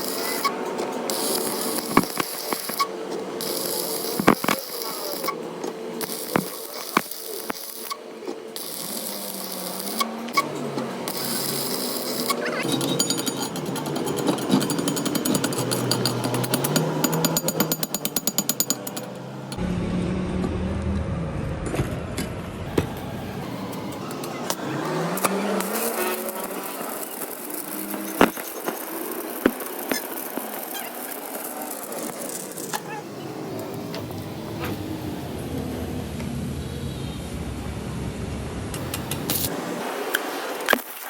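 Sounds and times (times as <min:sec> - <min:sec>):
rattling power tool: 0:00.0 - 0:19.6, 0:23.4 - 0:35.4.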